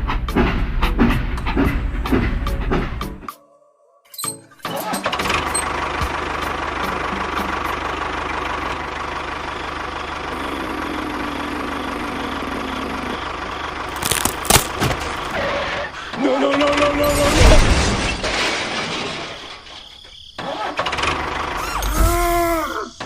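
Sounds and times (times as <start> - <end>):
small engine chugging: 4.9 - 17.0.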